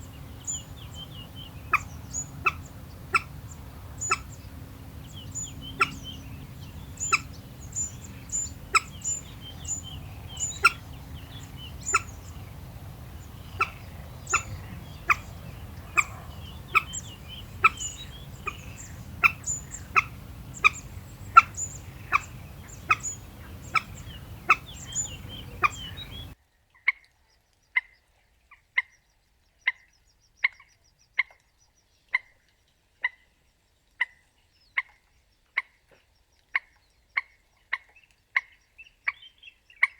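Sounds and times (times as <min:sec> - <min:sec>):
moorhen short sharp calls: 0:00.0 - 0:26.4.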